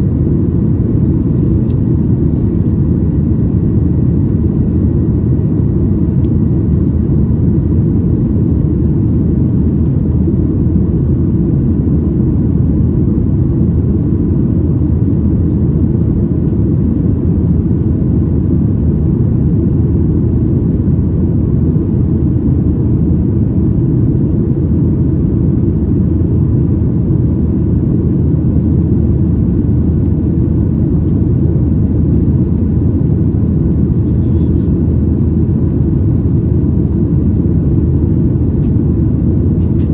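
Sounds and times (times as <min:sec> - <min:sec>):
airflow over fuselage: 0:00.0 - 0:23.6, 0:24.2 - 0:39.9
turbofan engine rumble: 0:00.0 - 0:39.9
faint whining tones: 0:33.7 - 0:36.4.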